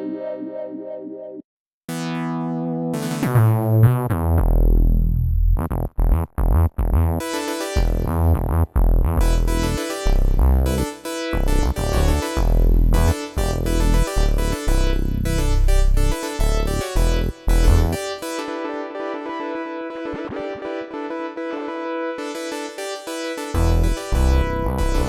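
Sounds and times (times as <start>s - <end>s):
deep synth bass: 1.9s - 18.0s, 23.6s - 25.0s.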